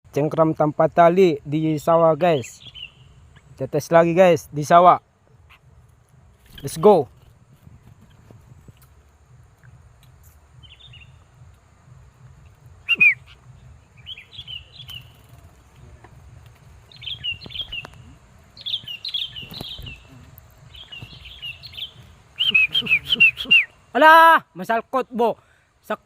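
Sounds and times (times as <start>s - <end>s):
bulbul chirping: 8.0s - 24.0s.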